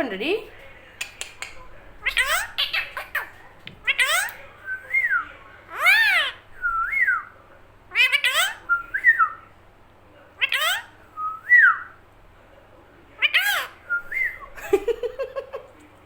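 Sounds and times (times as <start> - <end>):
parrot calling: 1.0 - 4.5, 5.7 - 7.3, 7.9 - 9.4, 10.4 - 12.0, 13.2 - 15.4
parrot whistling: 7.9 - 9.4.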